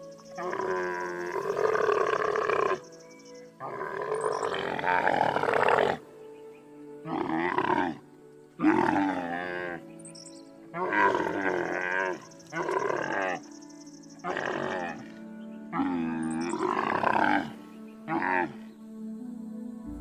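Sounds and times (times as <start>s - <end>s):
large animal calling: 0.0s - 6.1s, 7.0s - 8.0s, 8.6s - 9.9s, 10.7s - 13.5s, 14.2s - 18.7s
background music: 0.0s - 20.0s.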